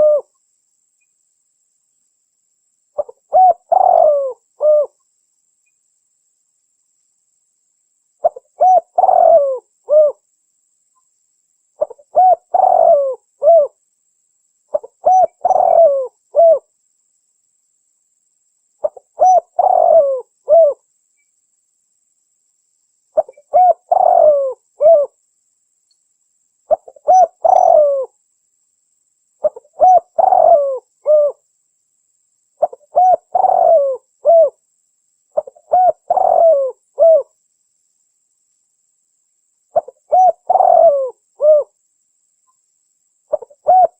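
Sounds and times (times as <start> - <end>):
dove cooing: 0.0 - 0.3, 3.0 - 5.0, 8.2 - 10.2, 11.8 - 13.8, 14.7 - 16.7, 18.8 - 20.8, 23.2 - 25.2, 26.7 - 28.1, 29.4 - 31.4, 32.6 - 34.6, 35.4 - 37.3, 39.8 - 41.7, 43.3 - 43.9.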